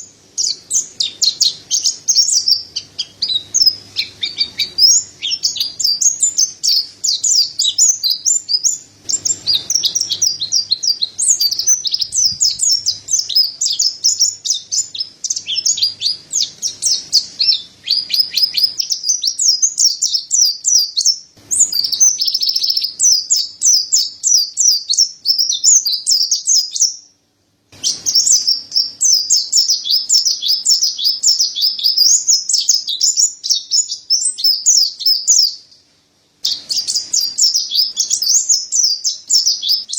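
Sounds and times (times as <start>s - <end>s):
bird twittering song: 0.0s - 27.2s, 27.8s - 39.9s.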